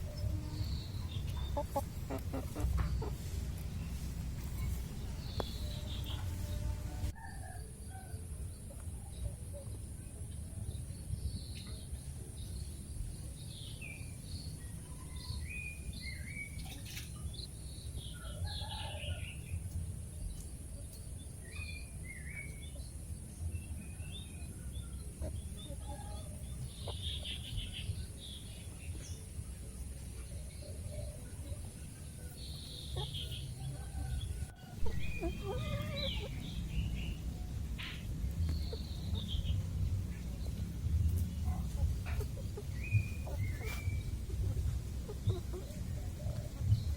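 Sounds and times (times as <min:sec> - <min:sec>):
steady low rumble: 0:00.0 - 0:07.2, 0:34.2 - 0:46.9.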